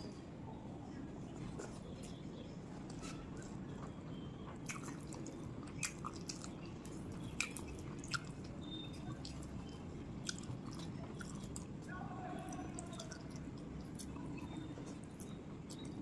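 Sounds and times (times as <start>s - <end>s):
low background hum: 0.0s - 16.0s
close chewing mouth sounds: 4.5s - 16.0s.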